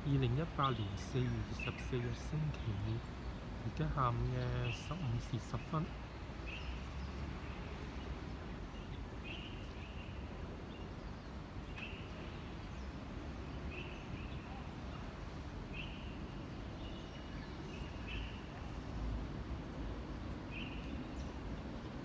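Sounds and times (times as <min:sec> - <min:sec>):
bird calling: 0:00.0 - 0:06.8.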